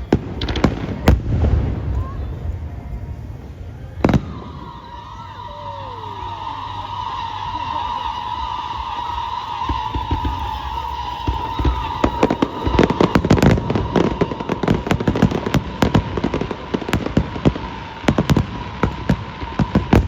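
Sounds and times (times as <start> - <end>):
fireworks cracking and banging: 0.0 - 20.0
steady high tone: 2.0 - 16.9.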